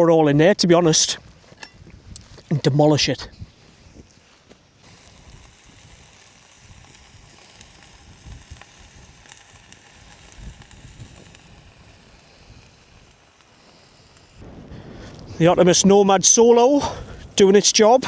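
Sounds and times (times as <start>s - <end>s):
wind rumble on microphone: 1.2s - 2.5s, 5.3s - 13.2s, 14.1s - 17.4s
steak sizzling: 3.6s - 18.0s.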